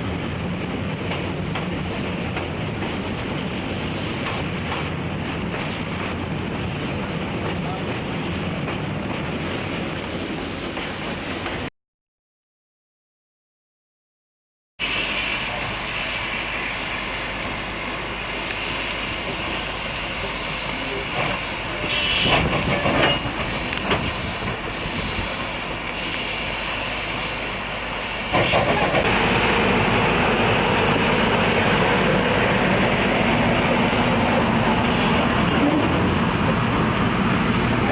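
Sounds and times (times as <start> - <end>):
train rumbling: 0.0 - 11.7, 14.8 - 37.9.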